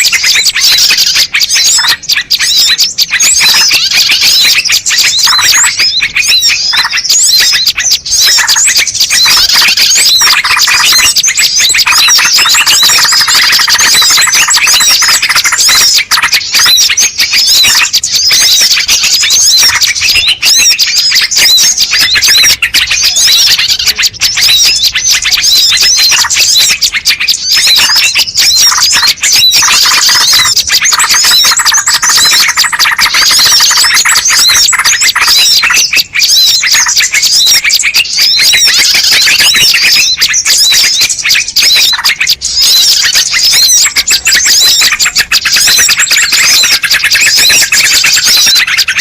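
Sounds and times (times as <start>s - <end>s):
small birds chirping: 0.0s - 49.0s.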